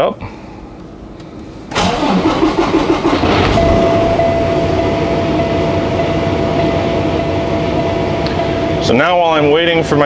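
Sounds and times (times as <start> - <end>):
diesel truck engine rumble: 0.0 - 10.0
steady warning tone: 2.6 - 10.0.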